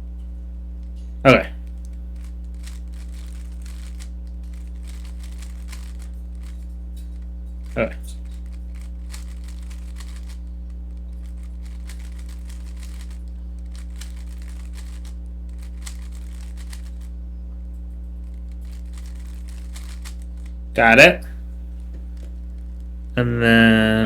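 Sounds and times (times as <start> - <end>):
low electrical hum: 0.0 - 24.0
puzzle cube clicking and scraping: 1.6 - 6.7, 7.6 - 17.1, 18.3 - 20.5.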